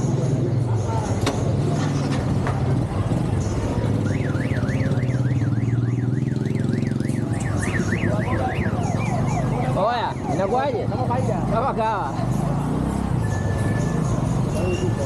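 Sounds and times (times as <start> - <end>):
siren warbling: 3.8 - 10.9.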